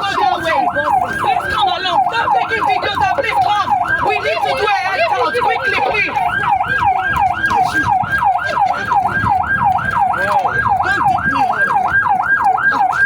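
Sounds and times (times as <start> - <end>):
siren yelping: 0.0 - 13.0.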